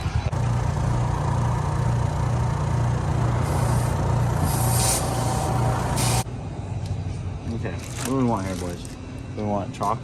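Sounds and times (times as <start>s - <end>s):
pit bike engine running: 0.2s - 6.3s
hissing noise bursts: 3.4s - 6.3s.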